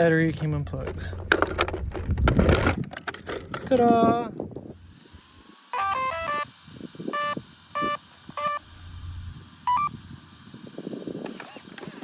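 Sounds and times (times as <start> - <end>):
electronic beeps: 9.7 - 10.0.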